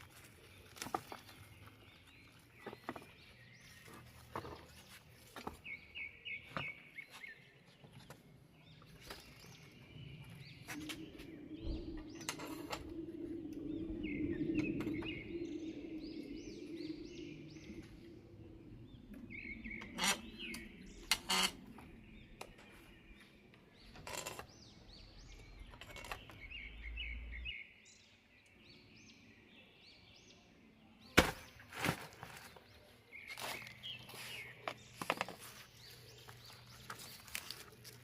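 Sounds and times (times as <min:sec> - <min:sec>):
small birds chirping: 0:00.0 - 0:38.0
low background rumble: 0:09.5 - 0:23.2.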